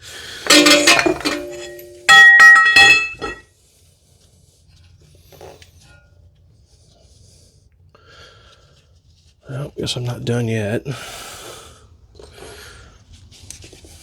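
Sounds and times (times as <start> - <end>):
metal tools clanking: 0.4 - 3.4.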